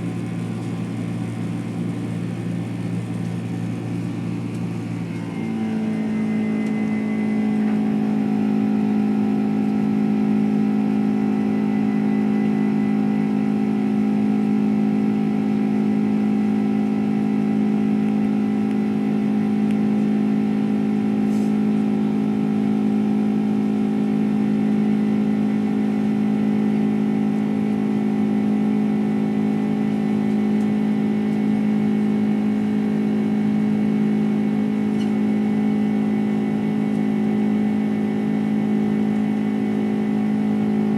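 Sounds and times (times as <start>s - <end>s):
jet engines heard from cabin: 0.0s - 40.9s.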